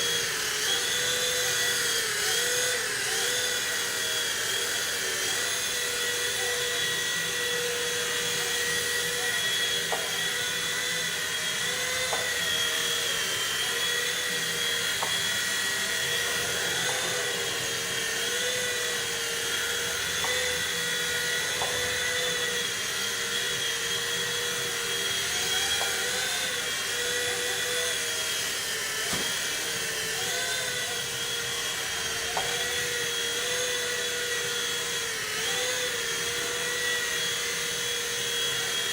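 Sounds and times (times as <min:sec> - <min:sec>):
rc helicopter rotor whining: 0:00.0 - 0:38.9.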